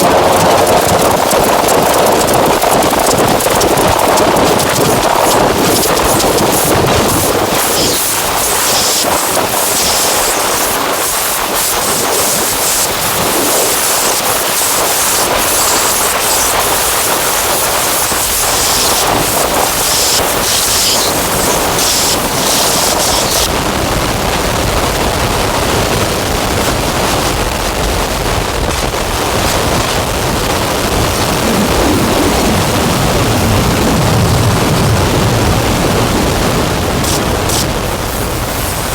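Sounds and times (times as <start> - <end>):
harsh synthesizer noise drone: 0.0 - 25.2, 26.7 - 38.9
rapid crackling clicks: 0.0 - 38.9.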